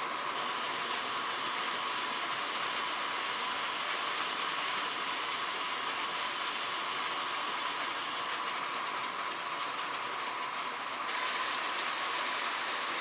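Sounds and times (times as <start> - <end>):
model trains running on track: 0.0 - 13.0.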